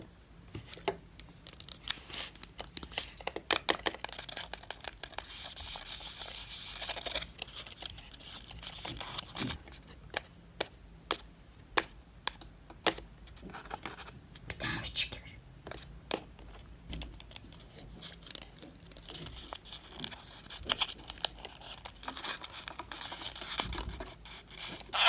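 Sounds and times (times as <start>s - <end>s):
packaging crinkling and tearing: 0.7s - 9.9s, 16.5s - 25.0s.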